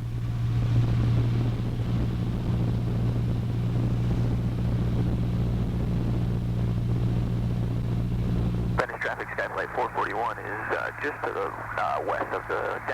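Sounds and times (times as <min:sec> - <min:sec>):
propeller plane engine droning: 0:00.0 - 0:12.9.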